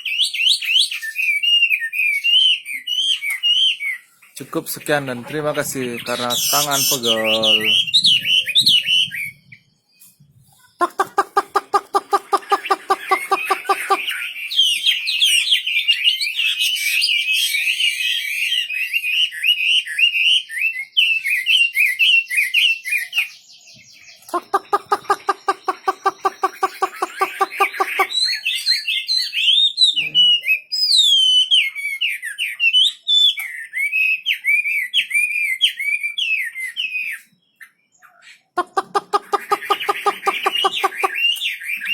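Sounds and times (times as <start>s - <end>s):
songbird warbling whistled notes: 6.1s - 19.2s
low fast rattling bird call: 10.7s - 14.2s, 24.3s - 28.3s, 38.6s - 41.4s.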